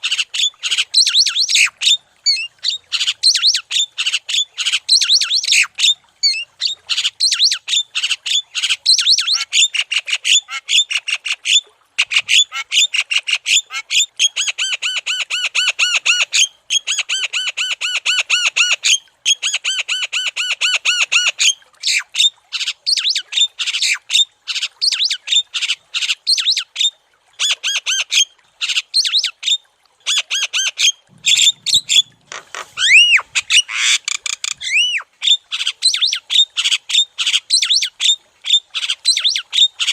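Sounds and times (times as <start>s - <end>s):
bird song with harsh chirps: 32.8s - 35.0s
bird whistle rising and falling: 32.8s - 35.0s.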